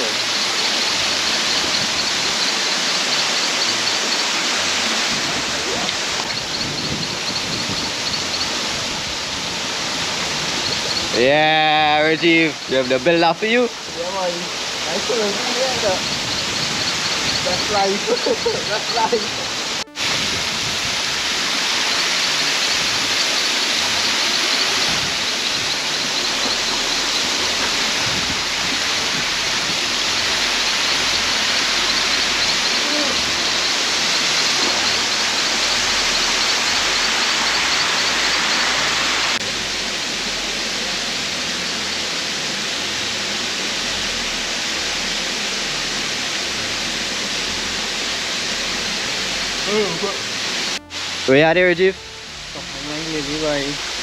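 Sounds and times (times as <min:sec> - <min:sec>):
faint high chirping: 0:00.0 - 0:09.5, 0:10.4 - 0:13.2, 0:14.8 - 0:20.0, 0:29.0 - 0:39.4
waterfall rushing: 0:00.0 - 0:54.0
faint high chirps: 0:29.7 - 0:39.4.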